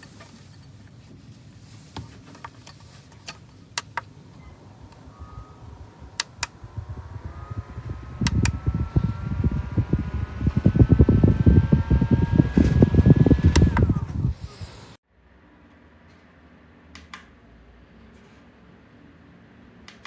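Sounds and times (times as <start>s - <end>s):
fan motor whine: 4.0s - 15.0s
air buffeting microphone: 4.1s - 15.0s
sharp clicks: 4.8s - 14.2s.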